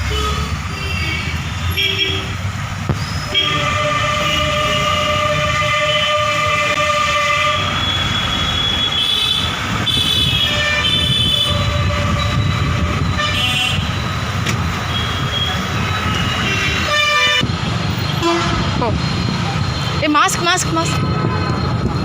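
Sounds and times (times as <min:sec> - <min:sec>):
long held horn: 0:03.3 - 0:07.8.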